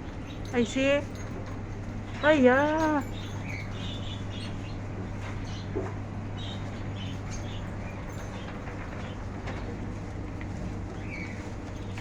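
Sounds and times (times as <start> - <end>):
steady low hum: 0.0 - 12.0
small birds chirping: 2.1 - 9.7, 10.7 - 12.0.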